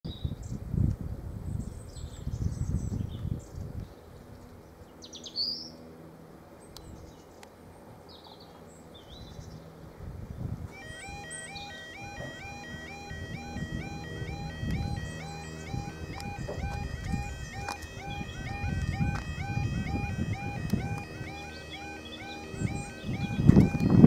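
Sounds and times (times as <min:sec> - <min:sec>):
small birds chirping: 0:01.5 - 0:05.8, 0:06.6 - 0:24.0
low rumbling noise: 0:10.0 - 0:24.0.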